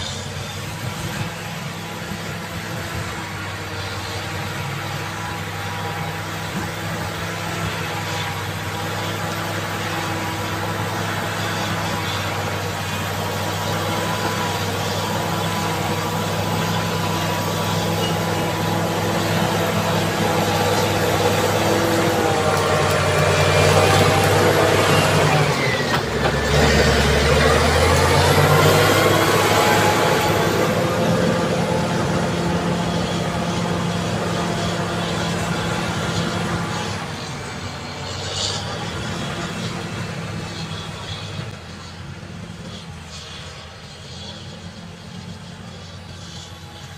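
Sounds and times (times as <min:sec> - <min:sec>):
bulldozer diesel engine running: 0:00.0 - 0:46.9.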